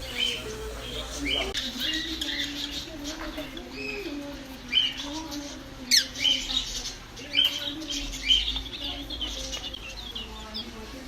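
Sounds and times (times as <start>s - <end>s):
caged birds squawking and chirping: 0.0s - 11.0s.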